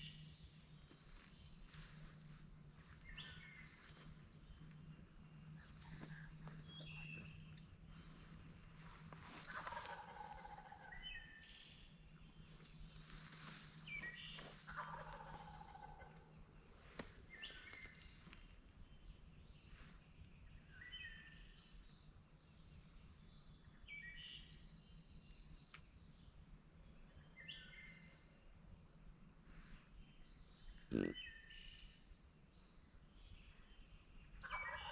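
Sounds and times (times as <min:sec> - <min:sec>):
songbirds chirping: 0:00.0 - 0:34.9
turkey gobbling: 0:09.5 - 0:10.9, 0:14.7 - 0:16.1, 0:34.4 - 0:34.9.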